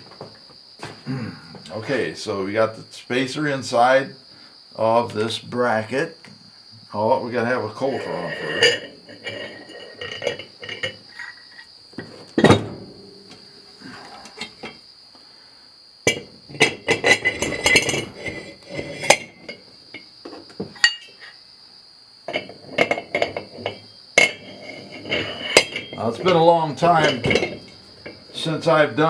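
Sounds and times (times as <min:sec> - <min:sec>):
metal parts clinking and clanking: 0:16.1 - 0:19.6, 0:20.8 - 0:21.3, 0:22.3 - 0:28.3.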